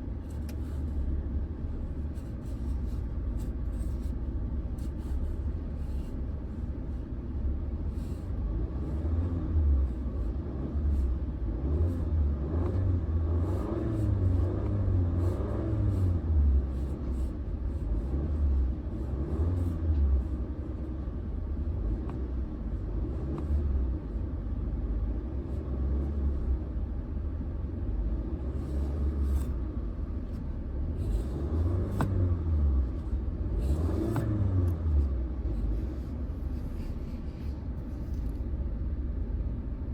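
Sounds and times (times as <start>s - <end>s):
car engine revving: 8.5s - 20.4s, 28.2s - 38.3s.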